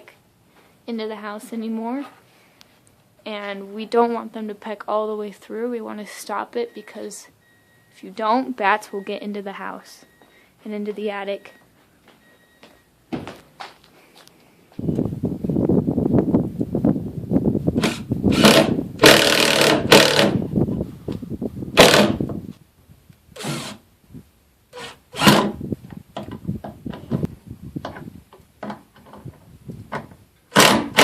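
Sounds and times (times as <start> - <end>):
power drill driving screws: 17.8 - 20.4, 21.8 - 22.2, 23.4 - 23.8, 24.8 - 25.6, 30.5 - 31.0.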